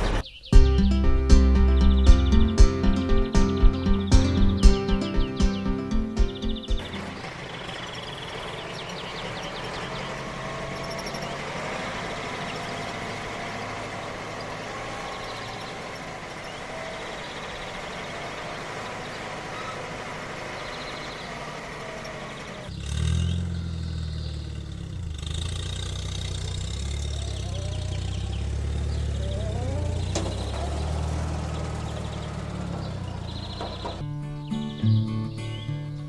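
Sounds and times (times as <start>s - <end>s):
engine running: 0.0s - 34.4s
faint bird chirps: 0.2s - 1.0s, 12.3s - 35.8s.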